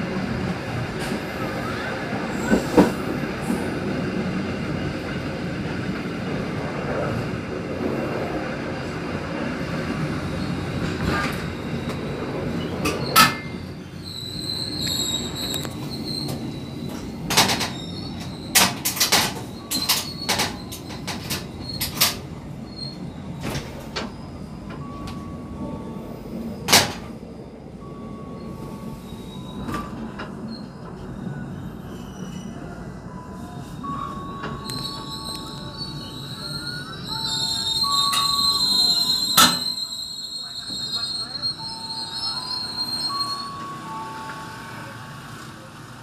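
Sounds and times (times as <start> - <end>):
train rumbling on rails: 0.0 - 46.0
high train wheel squeal: 0.4 - 46.0
sharp clicks from rail joints: 14.8 - 22.2.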